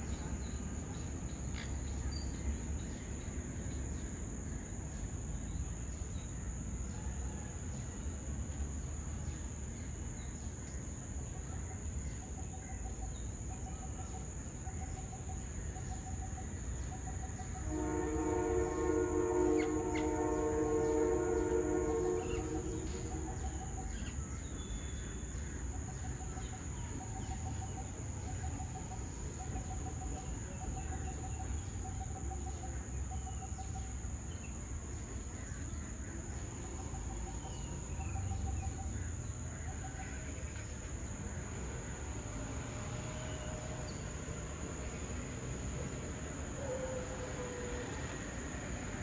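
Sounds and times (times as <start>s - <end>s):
high insect whine: 0.0s - 49.0s
distant train horn: 17.6s - 23.8s.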